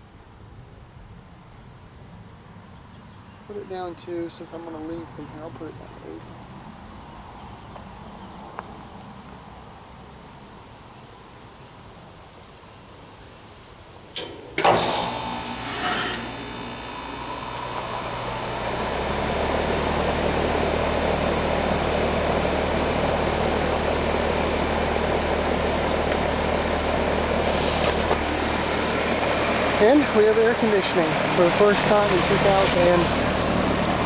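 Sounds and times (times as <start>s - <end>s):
compressor starting with surge: 14.2s - 34.0s
heat pump relay click: 14.2s - 34.0s
deep hum: 16.2s - 34.0s.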